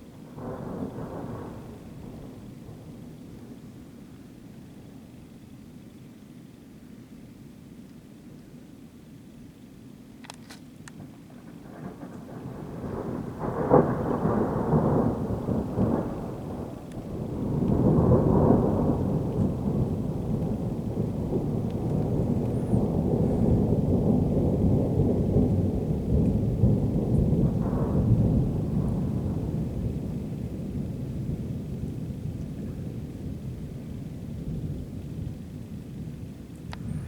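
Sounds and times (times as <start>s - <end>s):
thunder rumbling: 0.3s - 4.6s, 11.0s - 37.0s.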